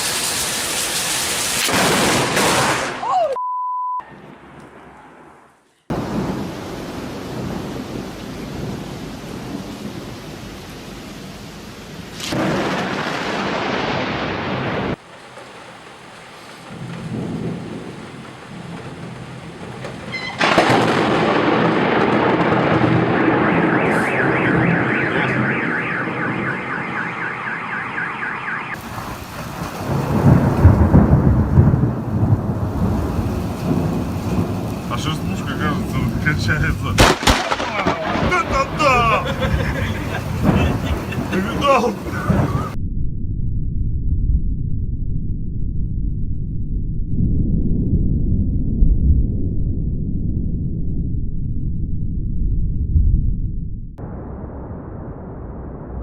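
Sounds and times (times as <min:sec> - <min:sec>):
steady rain: 0:00.0 - 0:03.0, 0:05.9 - 0:27.2, 0:28.7 - 0:42.8
thunder rolling: 0:00.0 - 0:03.0, 0:04.1 - 0:56.0
wind: 0:00.0 - 0:03.4, 0:04.0 - 0:42.8.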